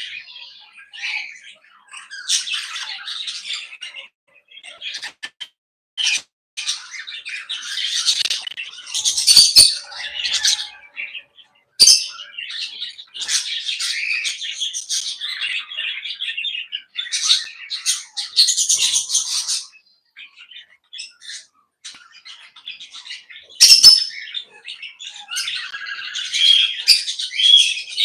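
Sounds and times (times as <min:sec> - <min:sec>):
parrots chattering and squawking: 0:06.0 - 0:28.0.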